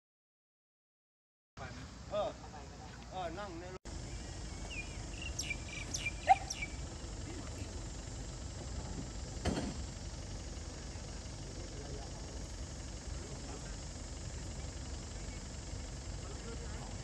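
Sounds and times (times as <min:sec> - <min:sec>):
outdoor background hiss: 0:01.6 - 0:17.0
bird chirping: 0:03.9 - 0:07.7
sharp knock: 0:09.4 - 0:09.8.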